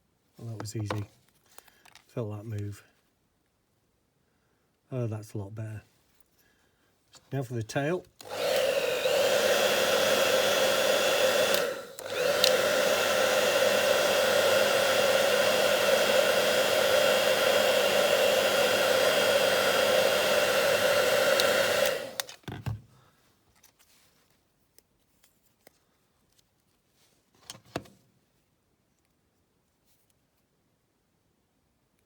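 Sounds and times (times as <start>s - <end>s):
hairdryer blowing with a whine: 8.2s - 22.4s.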